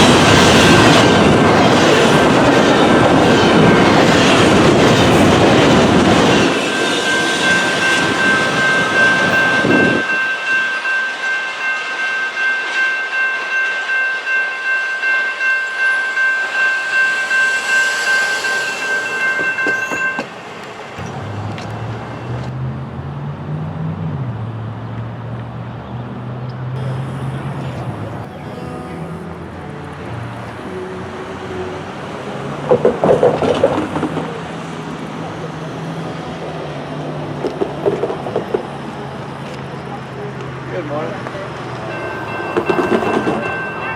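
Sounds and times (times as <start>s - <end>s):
train wheels on rails: 0.0s - 22.7s, 31.4s - 43.9s
high ringing tone: 5.3s - 22.5s, 41.8s - 43.9s.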